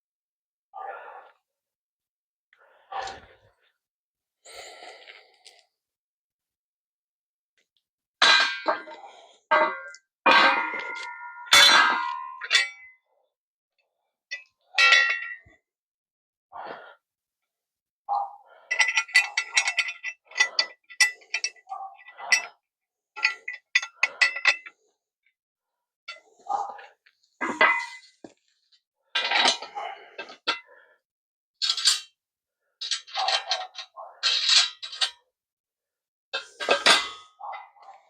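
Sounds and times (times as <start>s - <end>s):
metal tools clanking: 8.3s - 12.9s, 18.7s - 22.5s, 23.2s - 24.7s, 27.4s - 28.2s, 36.4s - 37.2s.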